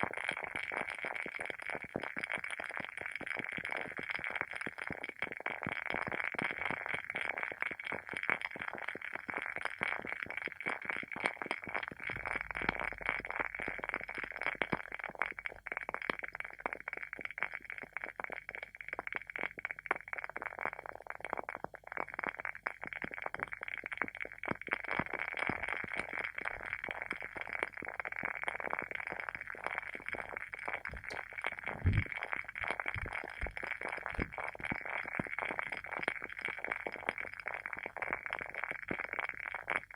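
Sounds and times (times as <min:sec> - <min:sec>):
wooden candle wick crackling: 0:30.7 - 0:36.0
low thump: 0:30.9 - 0:32.1.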